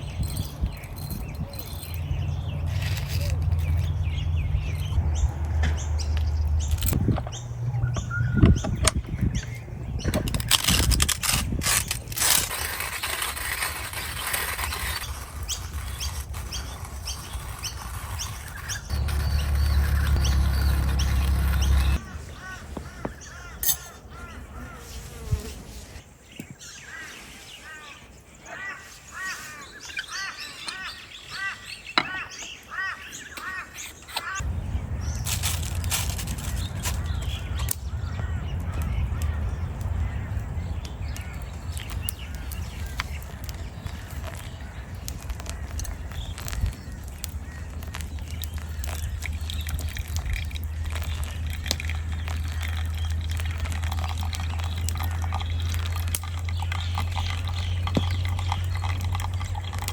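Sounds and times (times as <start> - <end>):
birds chirping: 0.0 - 11.4, 13.9 - 25.3, 26.0 - 59.9
low rumble: 1.8 - 9.0, 18.9 - 22.8, 34.4 - 44.0.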